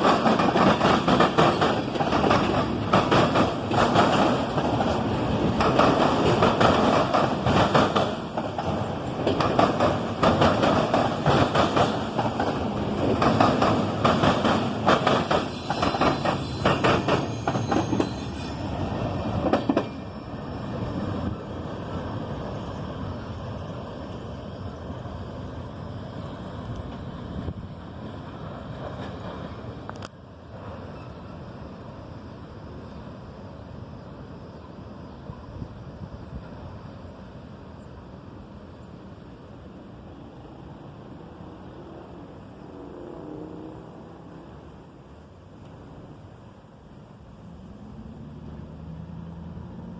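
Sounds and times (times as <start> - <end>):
train wheels clattering over rail joints: 0.0 - 18.6, 19.2 - 20.1
train rumble: 0.0 - 49.9.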